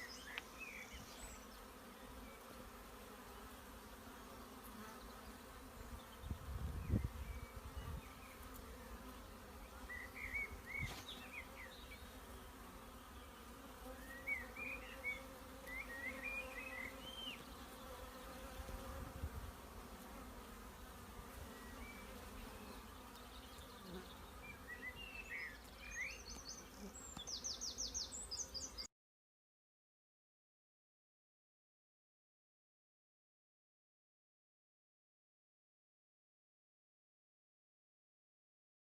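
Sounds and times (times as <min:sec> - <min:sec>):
bees buzzing: 0:00.0 - 0:28.8.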